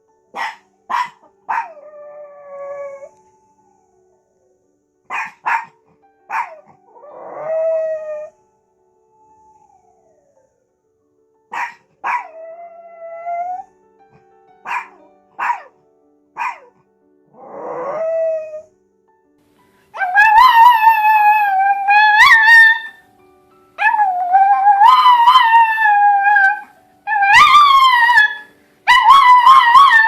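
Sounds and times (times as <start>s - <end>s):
dogs barking: 0.4s - 1.8s, 5.1s - 6.8s, 11.5s - 12.4s, 14.6s - 15.8s, 16.4s - 16.8s, 23.8s - 30.0s
dog howling: 0.4s - 4.0s, 6.4s - 8.4s, 11.6s - 13.7s, 17.4s - 18.7s, 20.0s - 23.0s, 23.8s - 30.0s
dog yowling: 11.6s - 13.7s, 20.0s - 23.0s, 23.8s - 30.0s.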